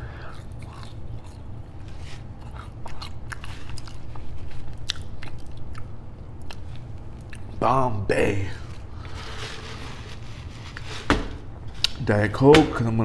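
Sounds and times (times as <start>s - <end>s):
person chewing fries: 0.0s - 7.6s
mouth clicks and crunches: 0.1s - 7.6s.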